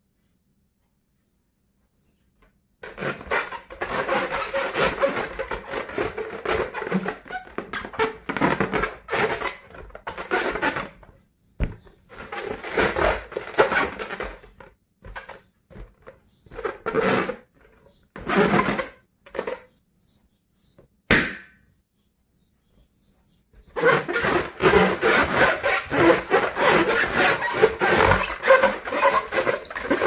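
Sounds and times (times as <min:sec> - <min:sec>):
balloon rubbing and rustling: 0:02.8 - 0:19.8, 0:23.6 - 0:30.0.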